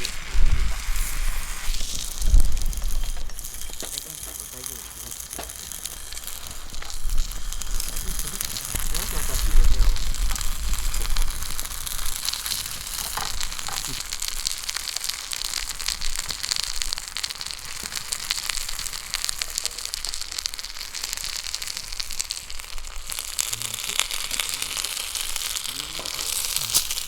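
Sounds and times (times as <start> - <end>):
skillet sizzling: 0.0 - 27.0.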